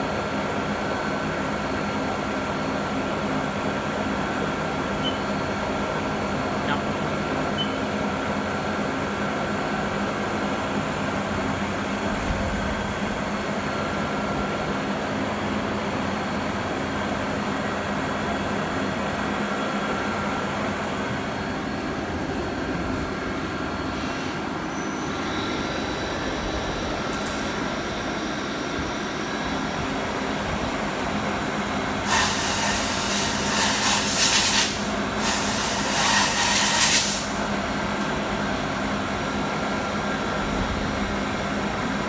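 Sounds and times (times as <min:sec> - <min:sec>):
lathe machine hum: 0:12.8 - 0:34.1.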